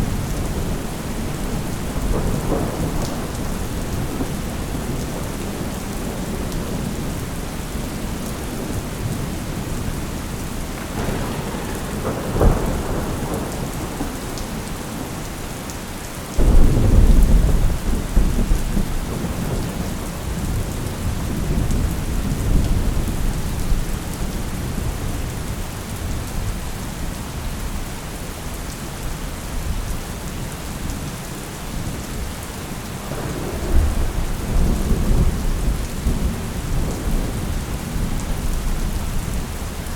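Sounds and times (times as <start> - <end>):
thunder crack: 0.0 - 7.1, 10.6 - 15.2, 16.4 - 22.9
rolling thunder rumble: 0.0 - 15.7, 16.3 - 26.8, 33.0 - 39.9
steady rain: 0.0 - 39.9.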